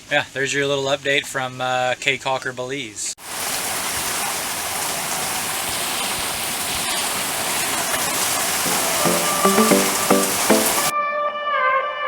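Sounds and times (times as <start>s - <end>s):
steady rain falling: 3.2s - 10.9s
bowed and plucked string music: 8.7s - 10.9s.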